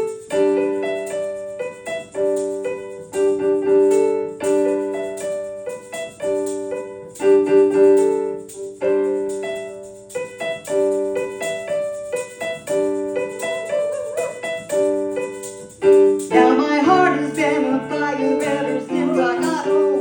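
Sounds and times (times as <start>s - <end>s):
piano chords: 0.0s - 20.0s.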